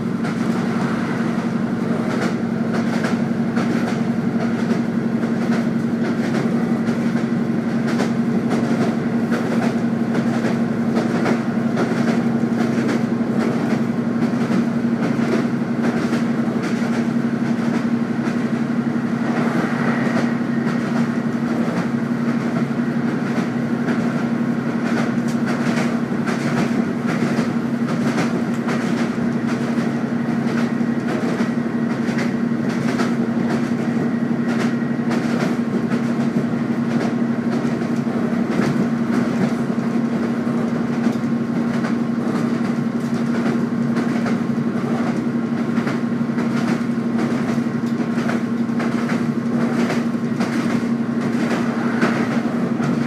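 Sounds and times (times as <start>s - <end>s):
train carriage hum and rumble: 0.0s - 53.0s
wheels clicking over rails: 0.0s - 53.0s.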